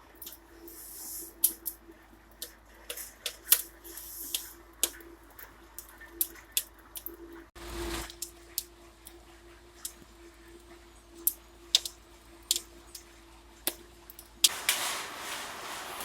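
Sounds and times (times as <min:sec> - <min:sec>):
firewood crackling and popping: 0:00.0 - 0:09.2, 0:09.8 - 0:16.0
fire hissing: 0:00.2 - 0:01.8, 0:02.8 - 0:06.6, 0:14.4 - 0:16.0.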